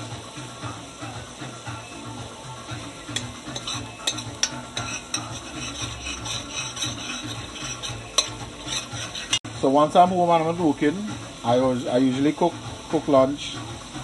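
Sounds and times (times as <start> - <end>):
food sizzling: 0.0 - 14.0
spoon stirring food in pot: 3.0 - 9.5.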